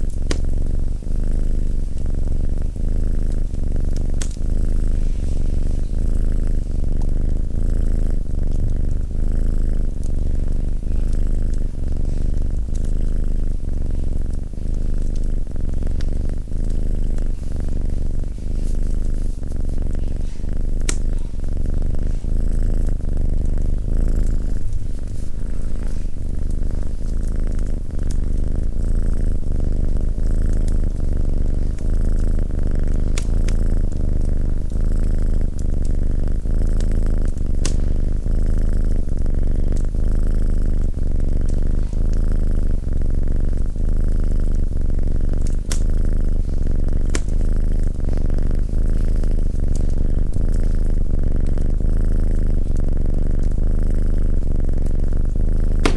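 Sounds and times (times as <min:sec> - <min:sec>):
cat purring: 0:00.0 - 0:55.9
wood fire crackling: 0:05.6 - 0:42.2, 0:45.0 - 0:51.1, 0:55.2 - 0:55.9.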